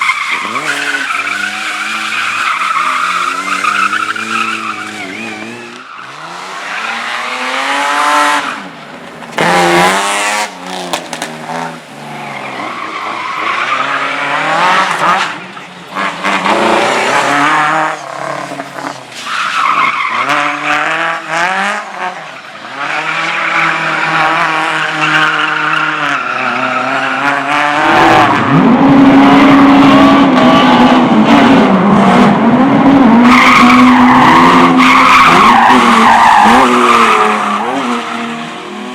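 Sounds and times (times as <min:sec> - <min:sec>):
tyre squeal: 0:00.0 - 0:07.4
race car engine revving: 0:00.0 - 0:38.9.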